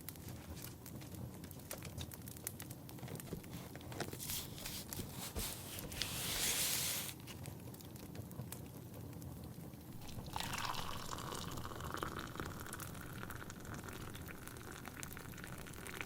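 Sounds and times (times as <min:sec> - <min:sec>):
fireplace crackling and popping: 0:00.0 - 0:04.9, 0:07.1 - 0:16.0
book page turning: 0:03.2 - 0:07.5.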